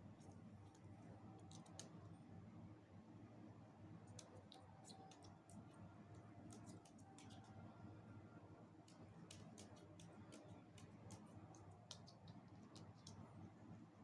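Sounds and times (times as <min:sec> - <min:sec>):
beak tapping at fruit: 0:08.9 - 0:13.2.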